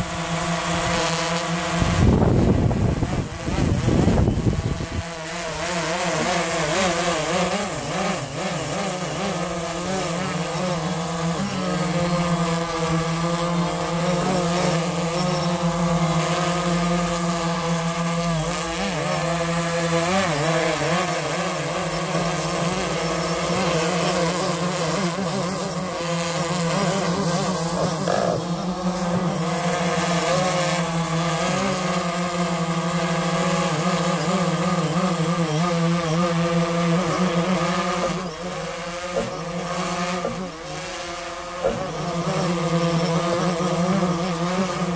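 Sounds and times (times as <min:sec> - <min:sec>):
quadcopter propellers humming: 0:00.0 - 0:44.9.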